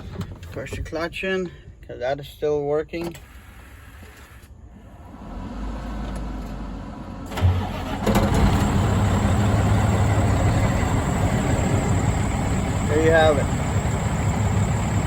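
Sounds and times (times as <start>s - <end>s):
diesel engine idling: 6.6s - 15.0s.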